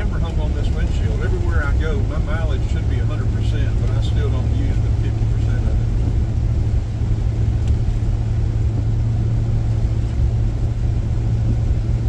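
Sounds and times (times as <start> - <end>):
constant low hum: 0.0 - 12.0
road and engine rumble in car: 0.0 - 12.0.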